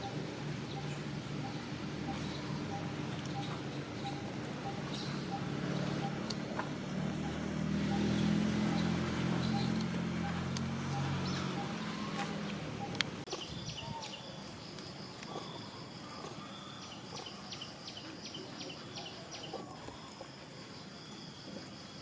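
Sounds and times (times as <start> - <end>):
low engine hum: 0.0 - 13.9
shrill animal chirping: 0.8 - 6.2.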